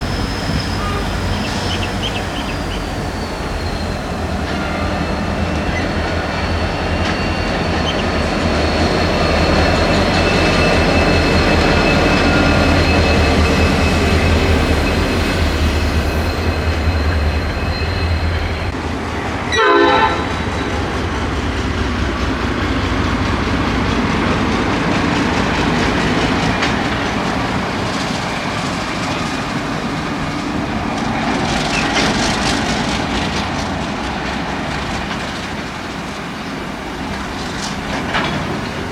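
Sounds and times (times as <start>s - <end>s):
train rumbling past: 0.0s - 38.9s
wheels squealing on rails: 0.0s - 38.9s
train horn blast: 0.6s - 2.5s, 19.5s - 20.5s.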